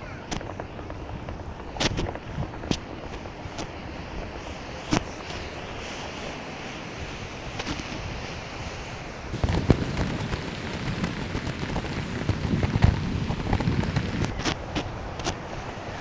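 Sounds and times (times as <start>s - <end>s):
wind on microphone: 9.3s - 14.4s
small knocks and low rumbles: 9.4s - 14.3s
tyre rolling on path: 9.4s - 14.3s.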